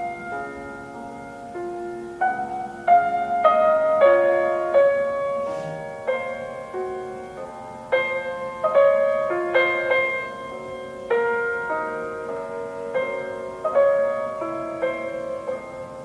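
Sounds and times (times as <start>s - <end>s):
solo piano melody: 0.0s - 16.0s.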